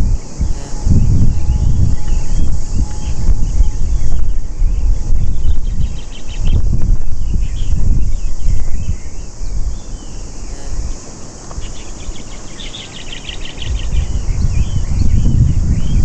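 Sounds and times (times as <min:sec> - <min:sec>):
small birds chirping and trilling: 0:00.0 - 0:16.0
wind buffeting microphone: 0:00.0 - 0:16.0.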